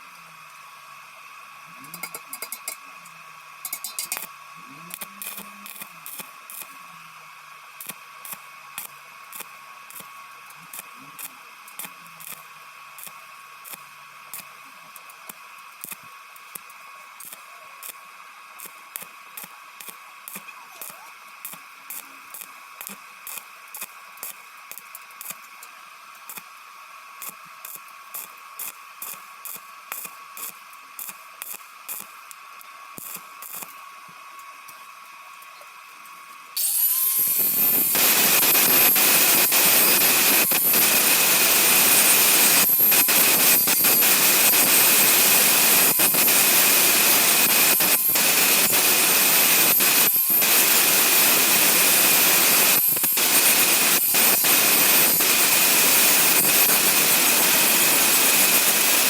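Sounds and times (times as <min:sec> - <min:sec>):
welding arc hiss and crackle: 0:00.0 - 0:59.0
short welding pulses: 0:03.6 - 0:06.7, 0:36.6 - 0:59.0.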